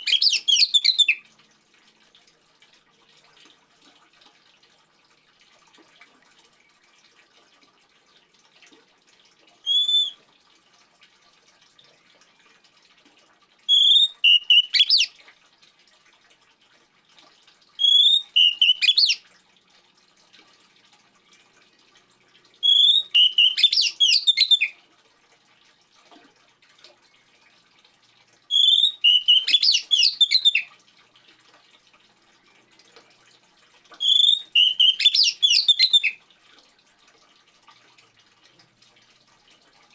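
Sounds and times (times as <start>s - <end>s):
bird singing whistled phrases: 0.0s - 1.2s, 9.7s - 10.2s, 13.7s - 15.1s, 17.8s - 19.2s, 22.6s - 24.8s, 28.5s - 30.7s, 34.0s - 36.2s
faint trickling water: 0.0s - 39.9s.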